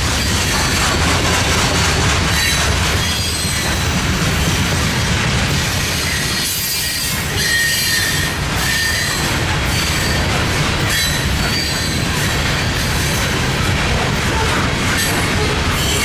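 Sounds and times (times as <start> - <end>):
freight train rumbling: 0.0 - 16.0
train wheels squealing: 2.2 - 4.1, 5.6 - 13.5, 14.4 - 16.0.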